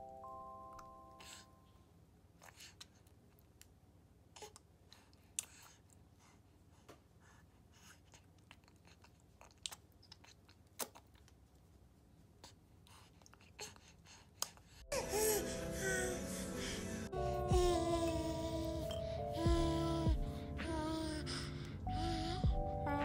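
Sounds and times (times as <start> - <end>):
baby sucking and mouthing: 2.4 - 3.4, 4.4 - 6.0, 7.8 - 11.4, 12.4 - 14.8.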